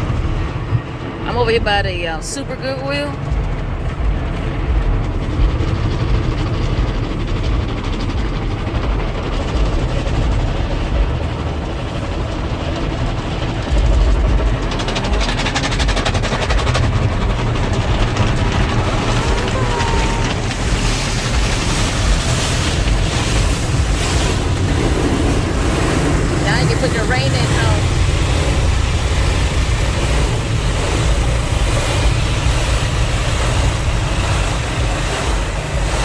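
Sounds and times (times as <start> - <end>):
car wash low rumble: 0.0 - 36.0
water spray hissing on car: 13.2 - 36.0.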